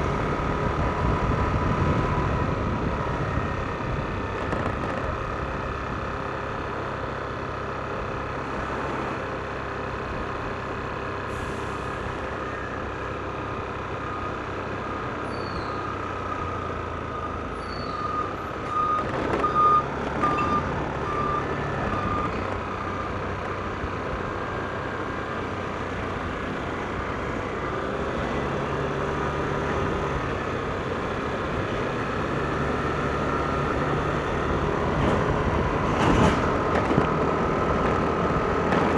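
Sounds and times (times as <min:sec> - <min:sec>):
tyre and wind noise: 0:00.0 - 0:05.6, 0:28.4 - 0:38.9
scooter engine drone and whine: 0:00.0 - 0:11.2, 0:12.3 - 0:38.9.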